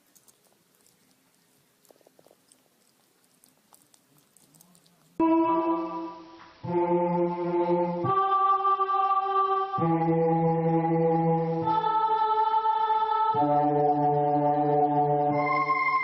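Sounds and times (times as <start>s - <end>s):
slow choir-like held chords: 5.2s - 16.0s.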